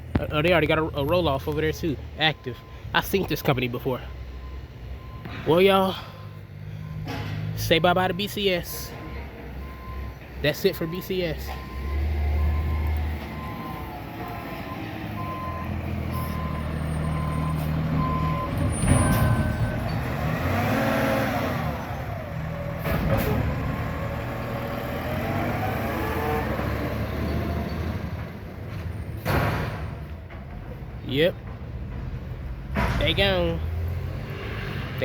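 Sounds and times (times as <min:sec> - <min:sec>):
diesel truck engine running: 0:00.0 - 0:33.8
reversing alarm beeping: 0:01.0 - 0:21.0.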